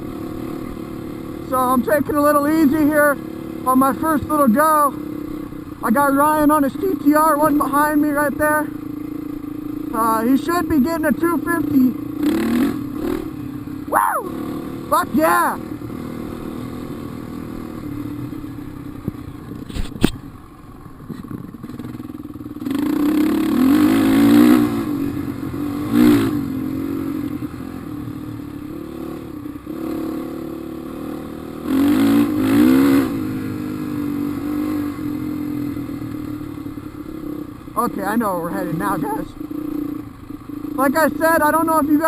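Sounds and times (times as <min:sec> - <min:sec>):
dirt bike engine revving: 0:00.0 - 0:20.0, 0:21.1 - 0:42.0
sharp click: 0:19.7 - 0:20.2.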